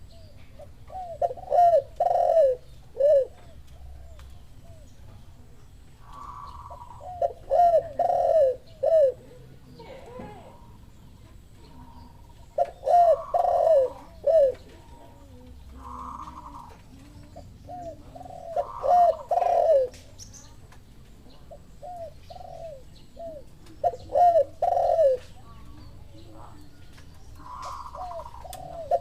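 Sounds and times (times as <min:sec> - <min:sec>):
doves cooing: 0:00.0 - 0:29.0.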